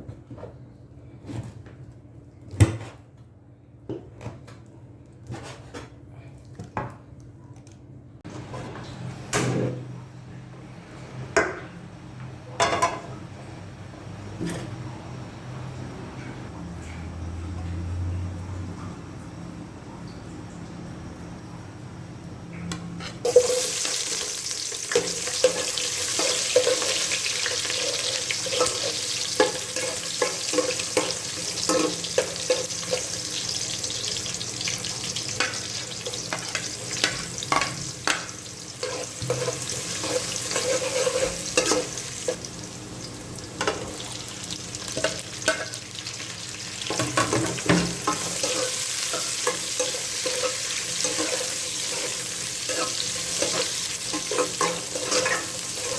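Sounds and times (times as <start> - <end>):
food sizzling in oil: 23.2 - 55.9
utensil scraping a pan: 38.8 - 42.4, 46.9 - 55.9.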